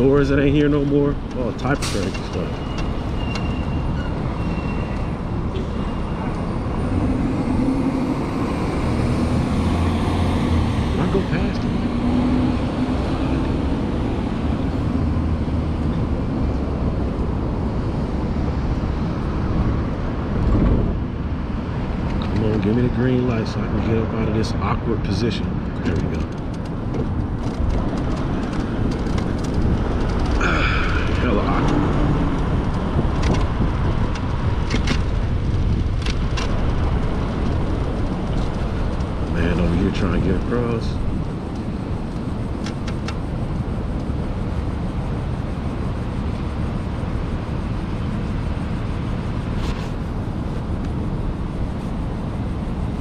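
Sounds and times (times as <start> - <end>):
wind rushing over microphone: 0.0 - 22.9, 25.4 - 53.0
road rumble: 0.0 - 53.0
traffic noise: 0.0 - 53.0
wind on microphone: 26.8 - 39.3.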